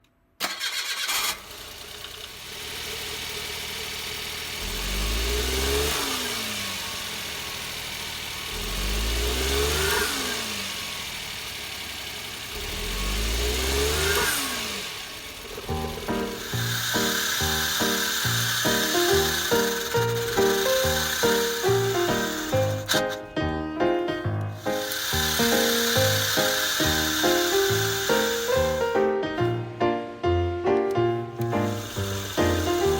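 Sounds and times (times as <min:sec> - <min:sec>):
rough engine revving: 0:00.4 - 0:29.8, 0:31.1 - 0:32.9.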